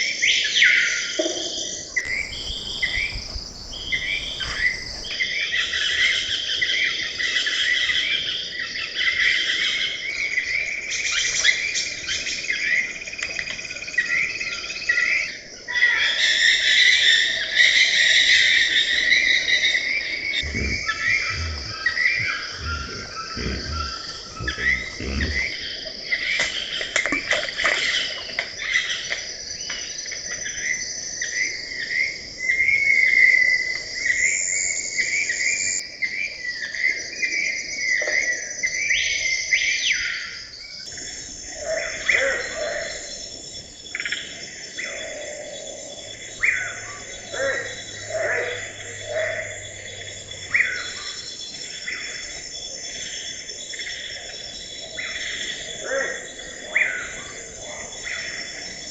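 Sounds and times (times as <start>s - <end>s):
insects chirring: 1.5s - 5.2s, 10.0s - 35.8s, 36.9s - 58.9s
soft low thumps: 2.1s - 5.1s, 20.4s - 25.5s
birds calling: 2.1s - 5.2s, 20.0s - 26.1s, 44.8s - 52.4s.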